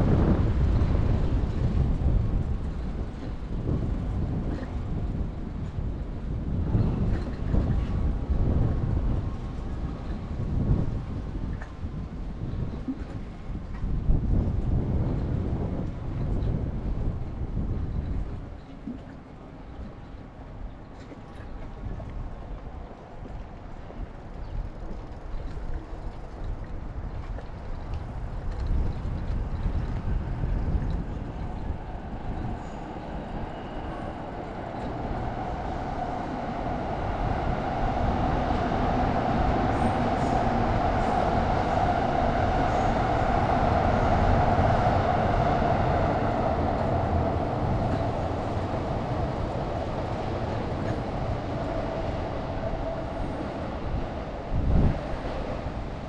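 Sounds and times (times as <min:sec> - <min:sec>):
train passing: 0:28.2 - 0:56.0.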